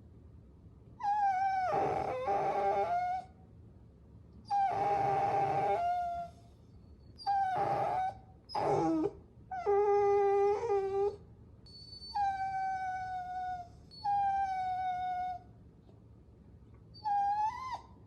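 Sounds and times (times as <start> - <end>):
puppies whining: 1.0 - 3.3, 4.5 - 6.4, 7.2 - 15.4, 17.0 - 18.0.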